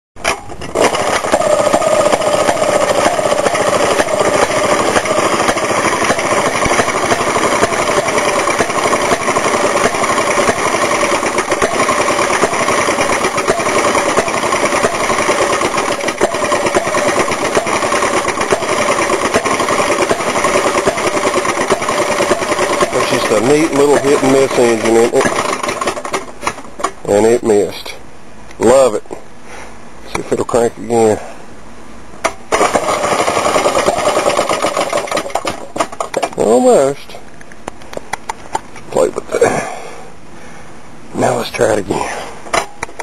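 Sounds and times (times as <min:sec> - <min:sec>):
two-stroke engine popping: 0:00.2 - 0:27.1, 0:32.2 - 0:36.5.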